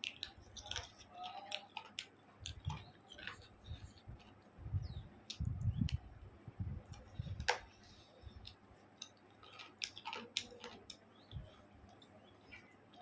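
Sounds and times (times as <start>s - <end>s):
person chewing food: 0.0s - 4.5s.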